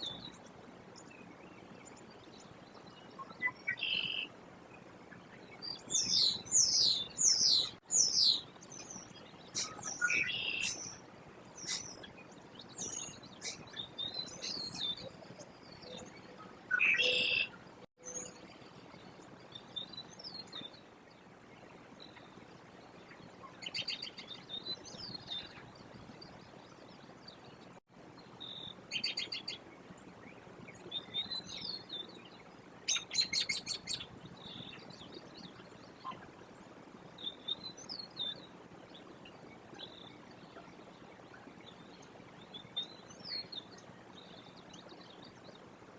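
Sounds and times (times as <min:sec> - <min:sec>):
faint outdoor background noise: 0:00.0 - 0:45.9
birds chirping and calling: 0:05.6 - 0:11.0, 0:11.6 - 0:18.3, 0:32.9 - 0:36.3
rapid trilled bird calls: 0:09.0 - 0:11.0, 0:32.9 - 0:34.8.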